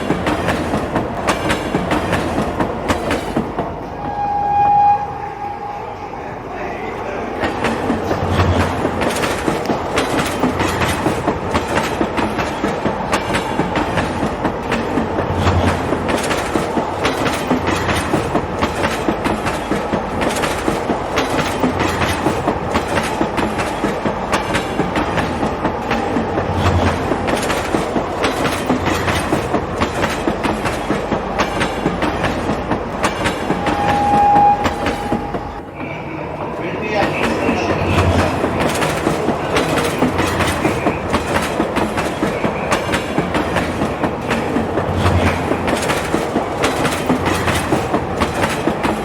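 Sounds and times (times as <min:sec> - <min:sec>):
train wheels clicking on rails: 0:00.0 - 0:04.2, 0:07.2 - 0:49.0
steady high tone: 0:04.0 - 0:07.0, 0:33.5 - 0:36.3.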